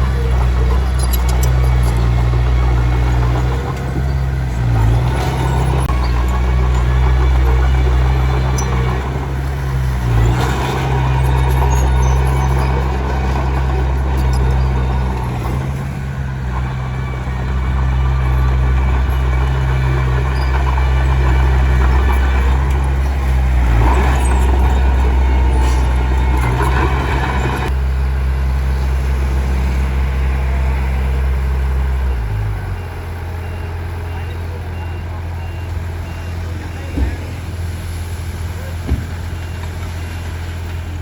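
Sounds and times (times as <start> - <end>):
tracks clattering and scraping stone: 0.0 - 27.8
bulldozer diesel engine working: 0.0 - 41.0.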